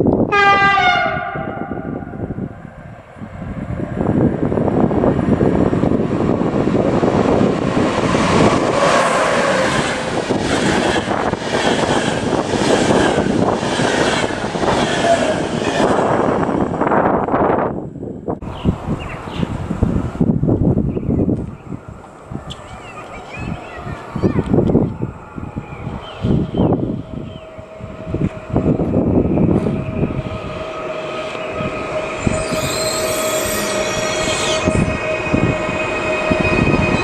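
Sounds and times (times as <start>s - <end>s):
train wheels rushing on rail: 0.0s - 37.0s
electric train horn: 0.3s - 2.2s.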